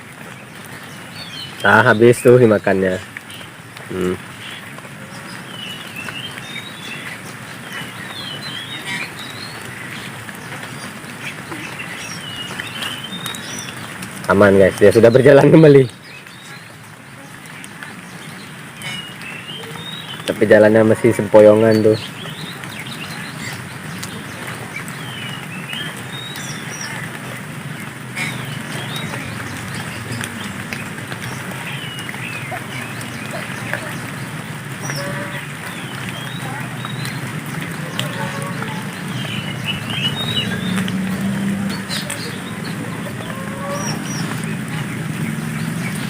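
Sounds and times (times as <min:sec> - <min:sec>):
steady outdoor hiss: 0:00.0 - 0:46.0
wild birds chirping: 0:00.0 - 0:46.0.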